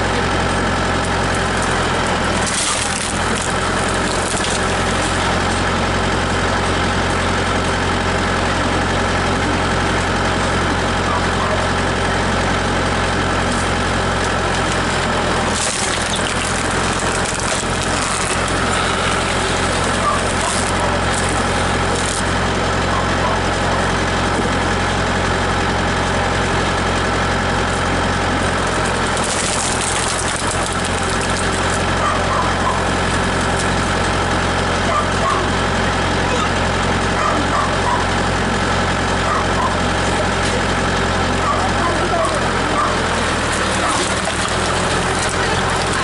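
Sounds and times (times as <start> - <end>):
tractor engine running: 0.0 - 46.0
wood splitting: 0.9 - 6.1, 12.9 - 22.6, 27.7 - 34.2, 40.0 - 46.0.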